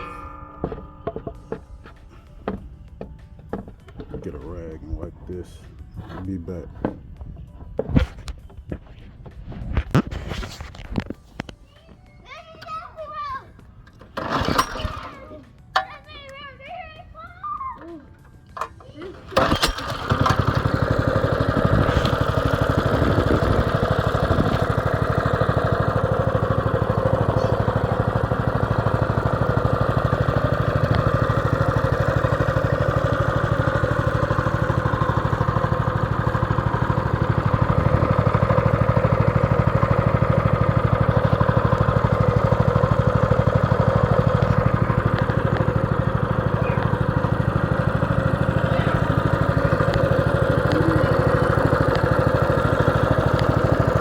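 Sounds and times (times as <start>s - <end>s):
small motorbike engine running: 14.0s - 15.6s, 18.6s - 54.0s.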